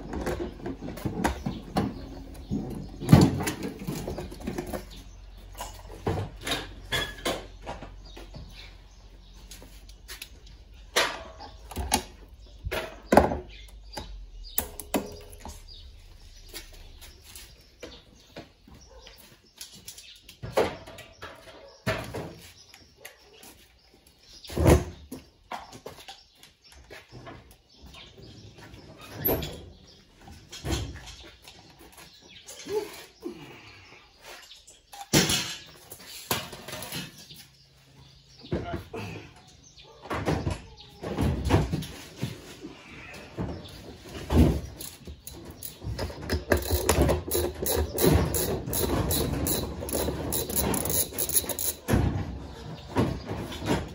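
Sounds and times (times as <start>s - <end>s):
machine parts knocking and scraping: 44.2s - 53.9s.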